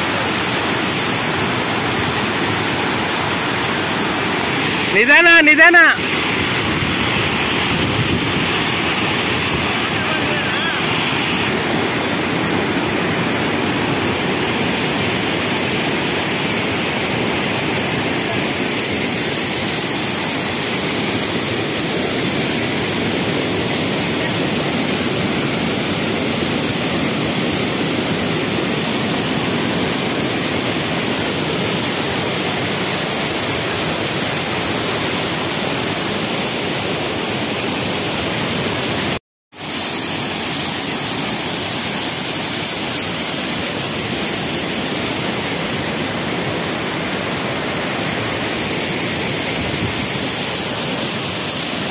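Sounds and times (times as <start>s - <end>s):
waterfall roaring: 0.0s - 51.9s.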